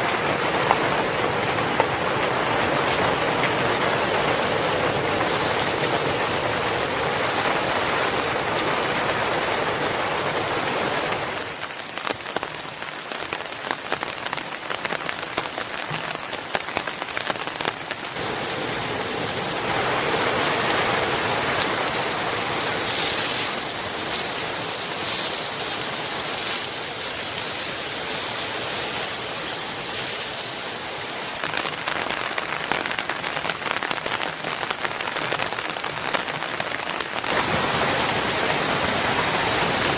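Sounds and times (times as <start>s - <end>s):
raindrops ticking: 0.0s - 37.4s
steady rain falling: 0.0s - 39.9s.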